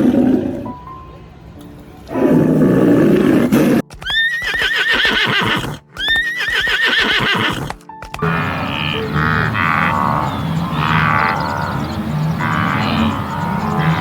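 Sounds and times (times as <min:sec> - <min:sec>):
rough low roar: 0:00.0 - 0:00.7, 0:02.1 - 0:03.8, 0:08.2 - 0:14.0
horse whinnying: 0:03.1 - 0:11.7.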